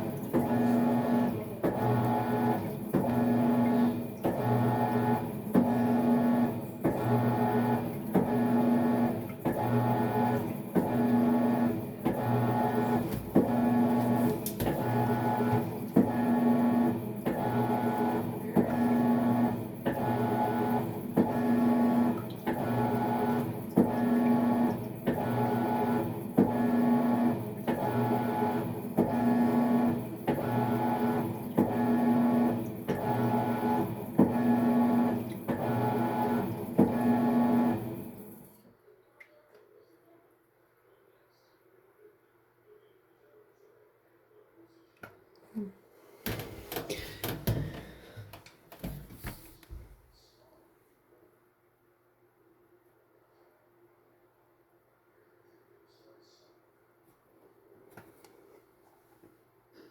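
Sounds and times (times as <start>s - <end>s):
washing machine motor humming: 0.0s - 38.6s, 45.6s - 50.2s
washer clicking: 46.2s - 50.0s.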